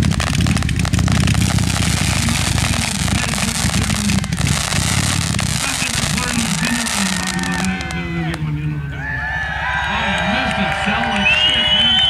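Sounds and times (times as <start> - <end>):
fireworks crackling: 0.0 - 8.6
low rumble: 0.0 - 12.0.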